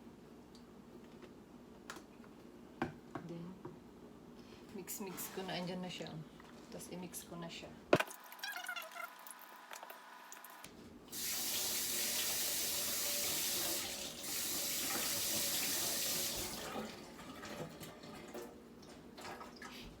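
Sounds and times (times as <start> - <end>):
tap running into a sink: 11.2 - 16.9.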